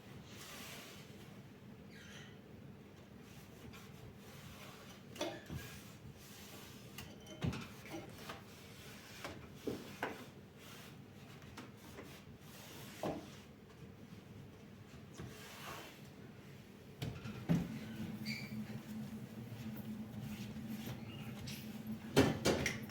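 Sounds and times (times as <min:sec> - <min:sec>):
faint steady hum: 0:16.6 - 0:22.9.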